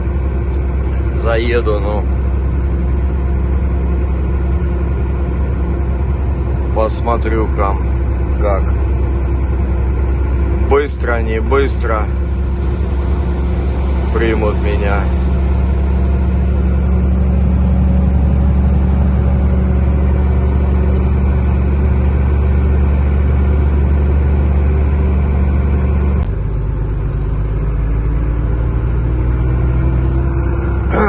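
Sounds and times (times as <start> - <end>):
truck engine from inside cab: 0.0 - 31.0
faint rising tone: 12.1 - 21.4.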